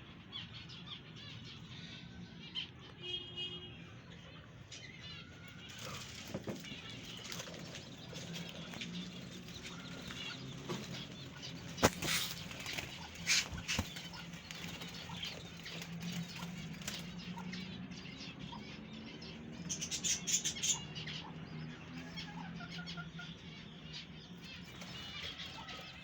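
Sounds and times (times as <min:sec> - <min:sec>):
bird wing flutters: 0:11.7 - 0:14.9.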